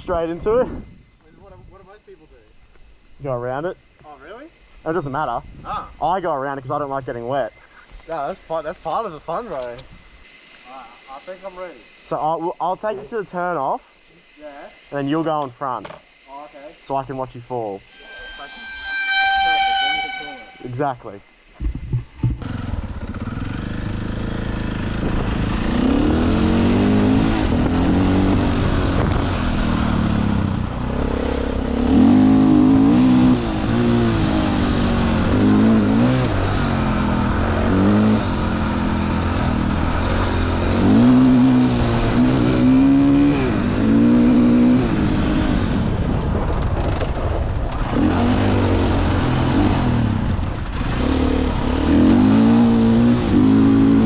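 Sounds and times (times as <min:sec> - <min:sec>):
dirt bike engine revving: 0:22.4 - 0:46.4, 0:47.7 - 0:54.0.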